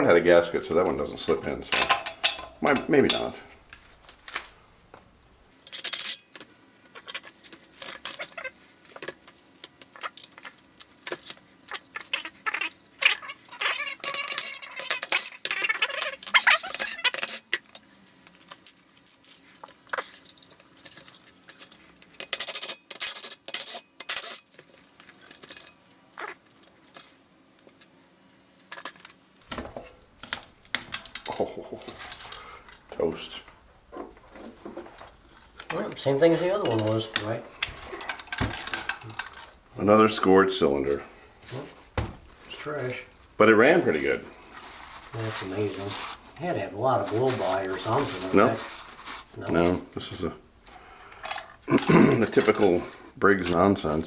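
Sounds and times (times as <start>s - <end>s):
metal tools clinking on workbench: 1.2s - 3.6s, 36.6s - 39.6s, 51.2s - 53.7s.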